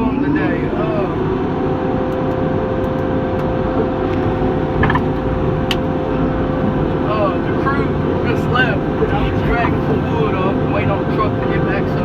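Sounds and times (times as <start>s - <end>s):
diesel engine running under load: 0.0s - 12.0s
steady whine: 0.0s - 12.0s
wood dragging: 4.2s - 7.1s.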